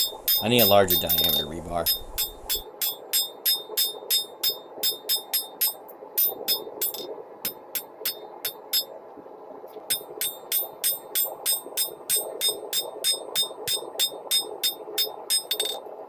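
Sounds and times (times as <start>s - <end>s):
hammer striking metal on anvil: 0.0s - 5.7s, 11.8s - 15.8s.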